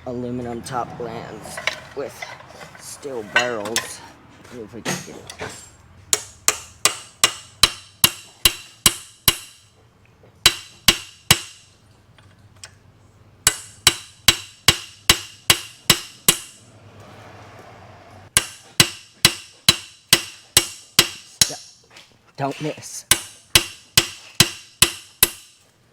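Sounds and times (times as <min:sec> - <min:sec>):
hammer striking steel: 0:04.9 - 0:09.7, 0:10.4 - 0:11.7, 0:13.4 - 0:16.6, 0:18.3 - 0:21.8, 0:23.1 - 0:25.6.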